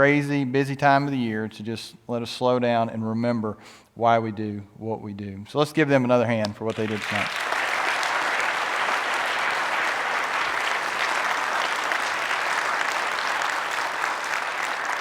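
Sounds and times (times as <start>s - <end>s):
congregation applauding: 6.6s - 15.0s.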